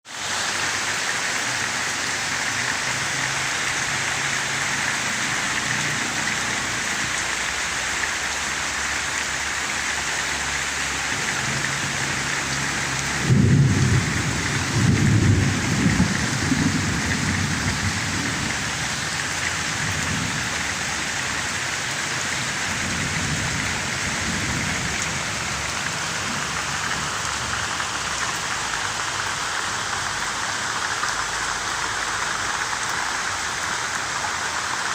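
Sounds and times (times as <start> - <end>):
rain falling: 0.0 - 34.9
thunder rumbling: 11.4 - 18.9.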